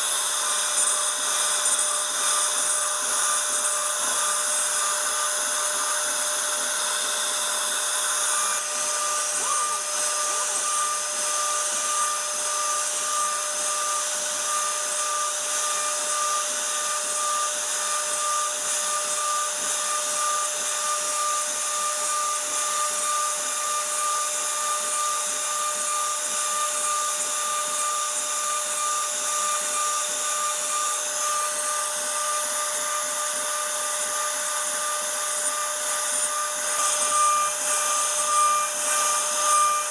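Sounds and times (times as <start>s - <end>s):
hiss of cutting: 0.0s - 22.8s
cnc router spindle whining: 0.0s - 39.9s.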